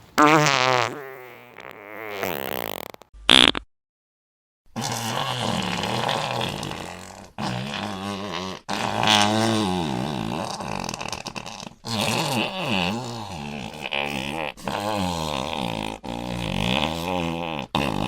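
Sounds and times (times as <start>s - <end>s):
fart sound effects: 0.1s - 3.7s.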